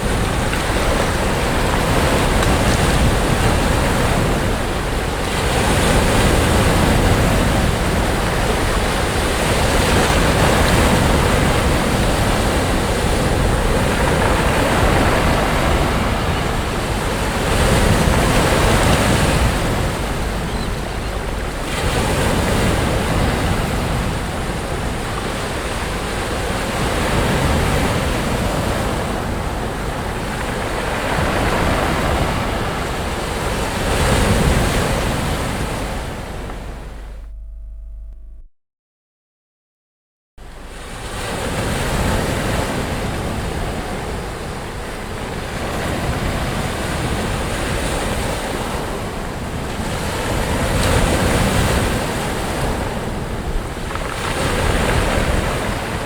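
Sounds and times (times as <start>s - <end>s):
sea waves breaking on a beach: 0.0s - 37.2s, 40.4s - 56.0s
wind buffeting the microphone: 0.0s - 37.2s.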